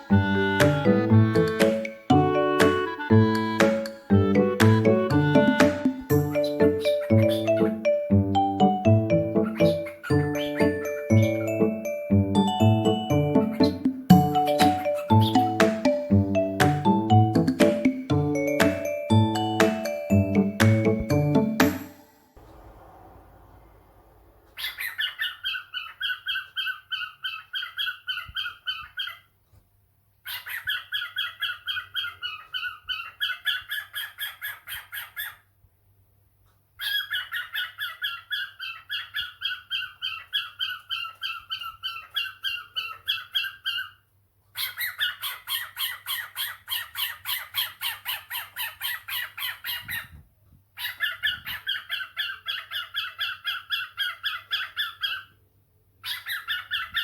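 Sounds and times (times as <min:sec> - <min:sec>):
cockatiel chirping rapidly: 0:06.3 - 0:07.8, 0:09.3 - 0:11.5, 0:24.6 - 0:29.3, 0:30.2 - 0:35.4, 0:36.8 - 0:44.0, 0:44.6 - 0:50.2, 0:50.8 - 0:55.3, 0:56.0 - 0:57.0.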